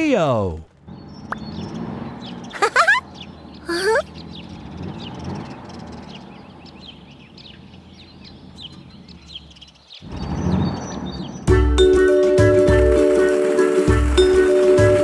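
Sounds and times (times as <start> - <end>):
birds chirping: 1.0 - 11.5
loud sliding bird call: 2.6 - 3.0, 3.6 - 4.0.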